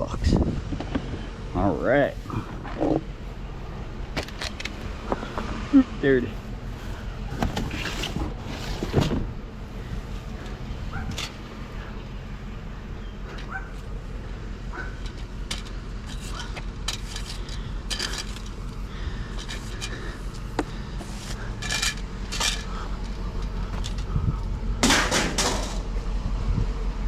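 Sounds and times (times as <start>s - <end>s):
scrap items clinking and clattering: 14.9s - 18.6s, 21.0s - 24.1s, 24.8s - 25.9s.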